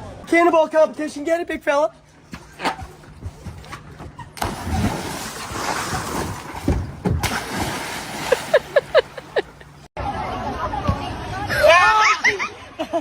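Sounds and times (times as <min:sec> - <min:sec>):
water splashing and churning: 0:04.4 - 0:09.9.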